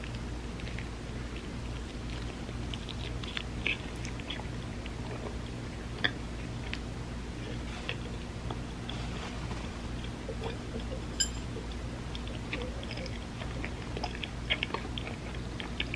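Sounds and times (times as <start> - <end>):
close-miked chewing: 0.0 - 15.9
low hum: 6.9 - 12.2.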